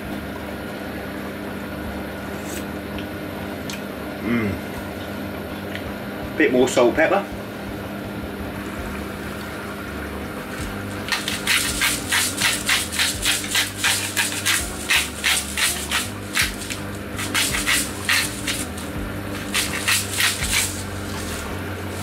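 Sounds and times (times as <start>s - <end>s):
salt and pepper grinders grinding: 10.9s - 22.0s.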